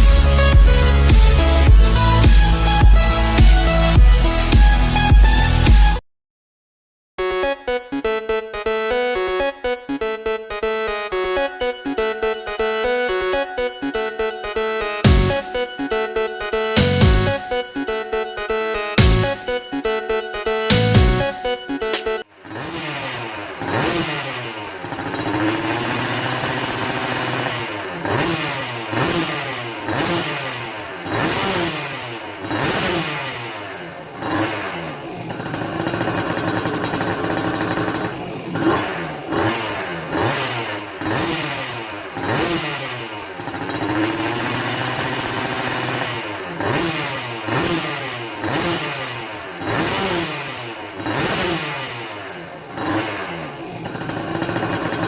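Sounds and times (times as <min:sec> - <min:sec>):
two-stroke engine revving: 0:00.0 - 0:05.7, 0:10.8 - 0:55.0.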